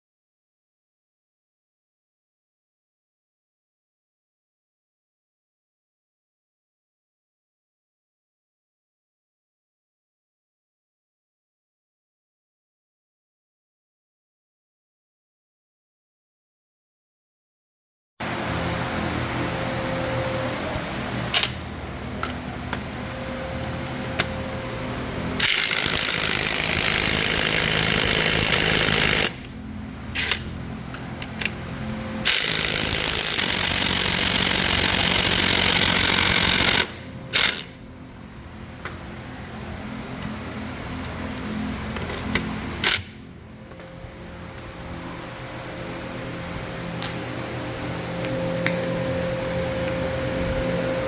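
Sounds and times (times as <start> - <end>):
power tool running: 18.2 - 51.0
steady low hum: 18.2 - 51.0
hand tools clicking and knocking: 25.4 - 29.5.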